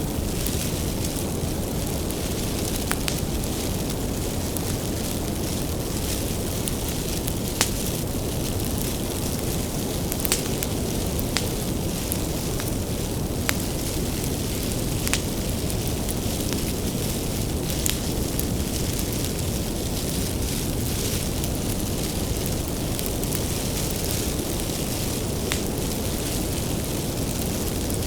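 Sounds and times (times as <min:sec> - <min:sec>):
bonfire flames rumbling: 0:00.0 - 0:28.0
firewood crackling and popping: 0:00.0 - 0:28.0.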